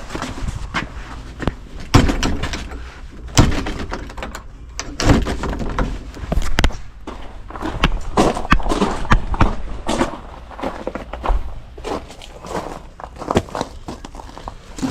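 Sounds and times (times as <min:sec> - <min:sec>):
heavy knocks and thumps: 0:00.0 - 0:11.5.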